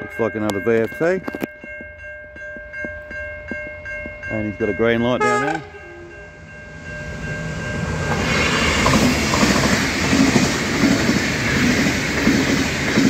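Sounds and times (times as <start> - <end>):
diesel train passing: 3.8 - 13.0.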